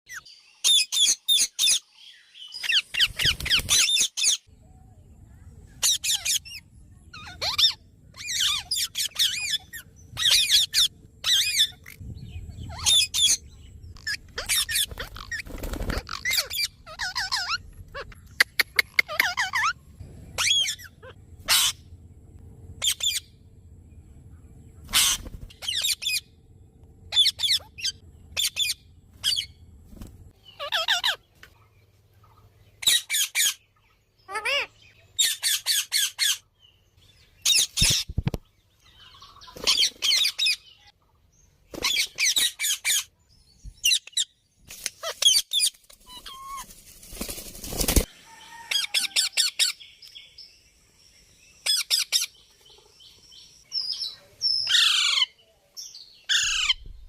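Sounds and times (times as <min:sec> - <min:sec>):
faint low hum: 0:04.5 - 0:32.9
parrot squawking: 0:07.2 - 0:12.0, 0:14.0 - 0:15.4, 0:16.0 - 0:19.8, 0:20.4 - 0:21.8, 0:24.9 - 0:26.3, 0:27.1 - 0:29.5, 0:30.5 - 0:31.2, 0:34.3 - 0:36.4, 0:54.7 - 0:55.3.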